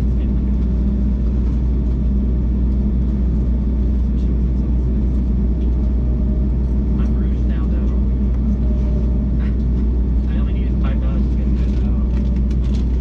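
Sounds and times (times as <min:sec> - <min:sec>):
jet engine rumble in cabin: 0:00.0 - 0:13.0.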